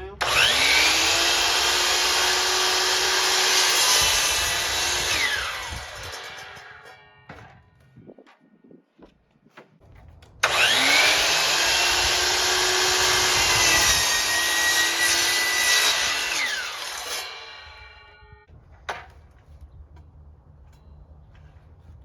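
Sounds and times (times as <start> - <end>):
power saw cutting plywood: 0.0 - 7.6, 10.4 - 18.4.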